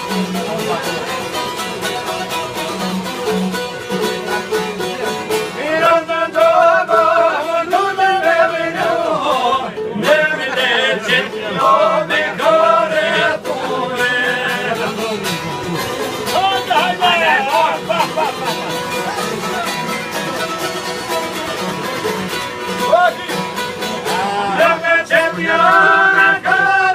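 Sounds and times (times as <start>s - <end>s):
plucked string instrument: 0.0s - 26.9s
person singing: 24.0s - 26.9s.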